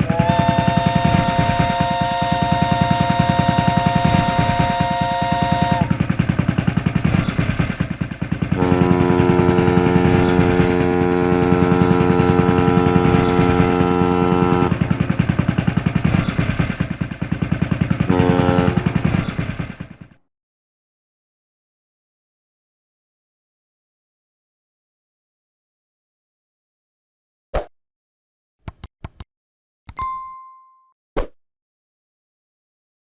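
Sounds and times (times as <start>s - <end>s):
boat horn blasts: 0.0s - 5.9s, 8.6s - 14.8s, 18.1s - 18.8s
boat engine chugging: 0.0s - 19.9s.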